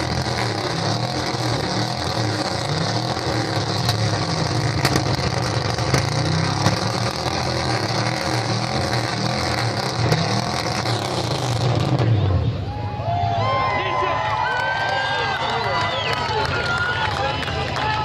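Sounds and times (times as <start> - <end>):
exhaust pops: 0.0 - 12.2
car engine revving: 0.0 - 12.7.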